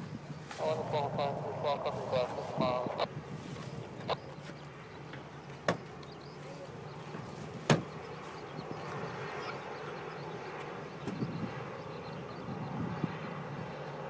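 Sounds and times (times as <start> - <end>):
wind noise: 0.0 - 4.4, 11.0 - 13.7
jet engines droning: 0.0 - 14.0.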